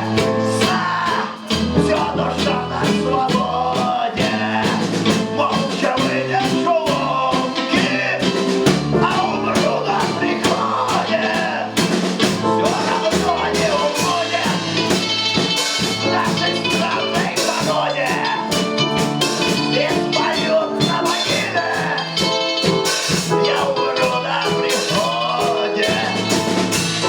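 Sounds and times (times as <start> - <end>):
live rock band playing: 0.0 - 27.0.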